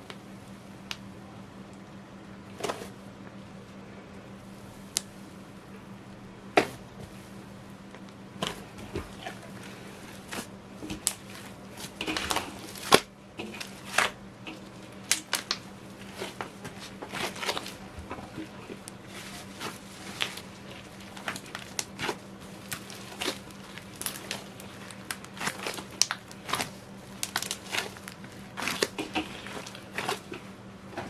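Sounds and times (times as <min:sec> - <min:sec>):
slime squishing by hand: 0:06.6 - 0:31.0.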